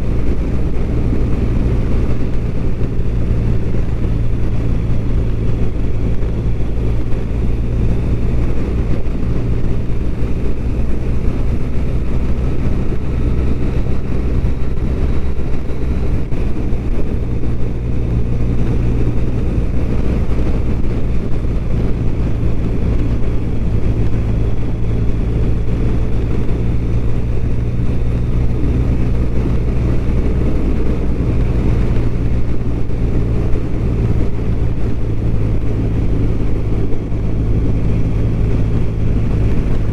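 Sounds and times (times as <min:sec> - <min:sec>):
motorcycle engine cruising: 0:00.0 - 0:39.9
road rush: 0:00.0 - 0:39.9.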